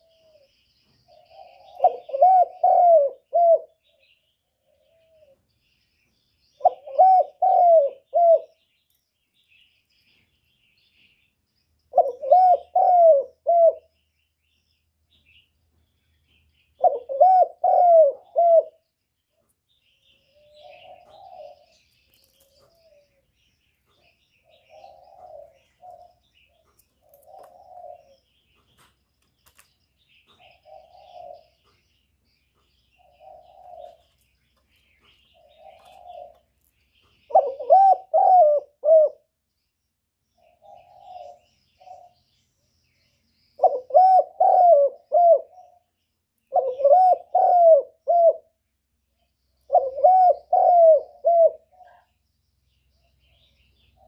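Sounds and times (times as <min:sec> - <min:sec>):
dove cooing: 0:00.0 - 0:05.5, 0:06.6 - 0:08.6, 0:11.9 - 0:14.0, 0:16.8 - 0:18.9, 0:20.1 - 0:28.4, 0:30.2 - 0:31.8, 0:32.9 - 0:34.3, 0:34.9 - 0:36.5, 0:37.2 - 0:39.3, 0:40.4 - 0:42.2, 0:43.6 - 0:48.6, 0:49.7 - 0:52.1
small birds chirping: 0:00.0 - 0:54.0.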